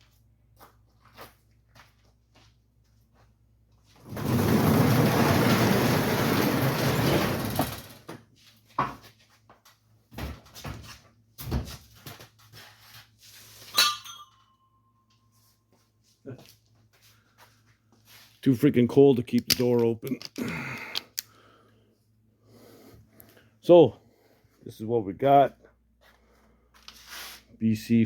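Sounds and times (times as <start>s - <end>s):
sliding door scraping shut: 4.0s - 8.2s.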